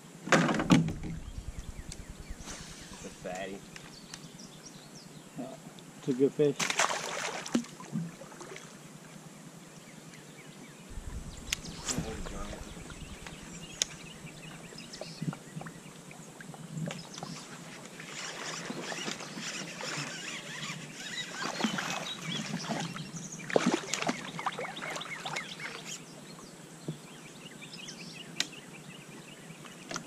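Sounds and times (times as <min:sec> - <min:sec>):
water splashing and sloshing: 0:06.6 - 0:08.8, 0:21.3 - 0:25.4.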